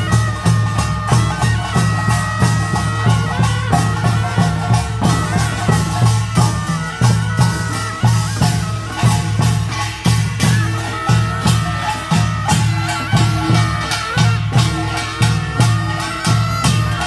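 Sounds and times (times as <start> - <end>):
drums beating: 0.0 - 17.0
wind instrument high tones: 0.0 - 17.0
small gongs clashing: 0.1 - 17.0.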